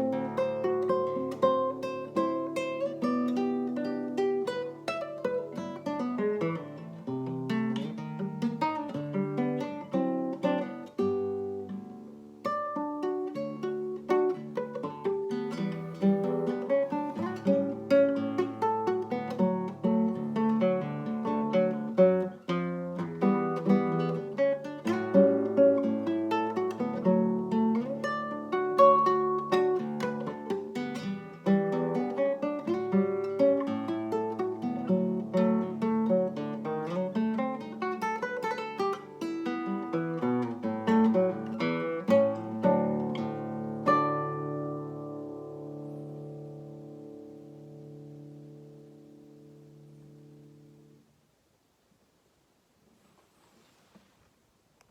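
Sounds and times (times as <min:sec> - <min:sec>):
acoustic guitar music: 0:00.0 - 0:51.2.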